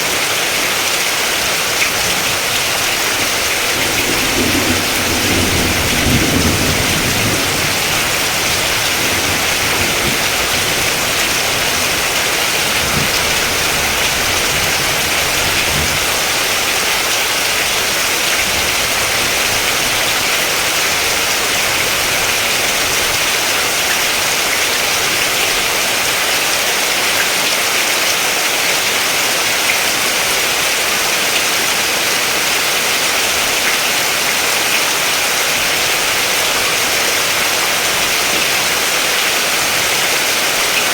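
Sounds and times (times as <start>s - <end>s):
steady rain hiss: 0.0s - 40.9s
low thunder rumble: 2.0s - 23.2s.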